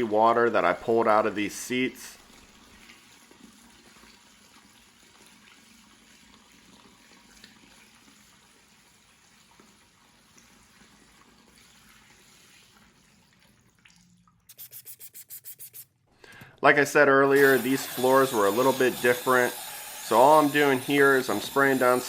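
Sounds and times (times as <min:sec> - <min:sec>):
faint water trickle: 0:00.0 - 0:14.6.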